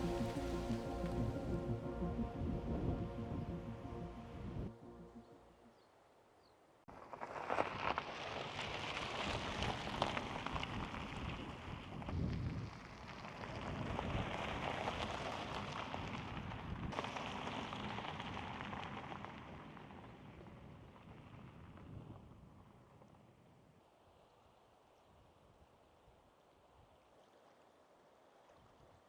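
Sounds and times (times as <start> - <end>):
rain falling: 0.0 - 4.1.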